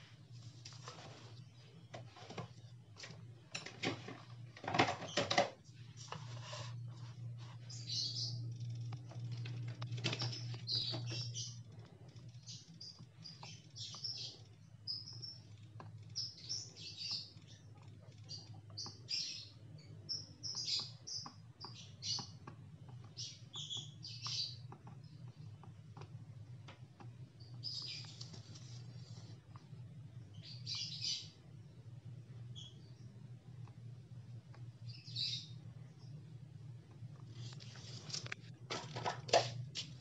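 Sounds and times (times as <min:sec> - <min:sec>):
steady low hum: 0:00.0 - 0:40.0
bird chirping: 0:06.8 - 0:25.7, 0:27.0 - 0:29.3, 0:30.2 - 0:33.7, 0:34.8 - 0:36.3.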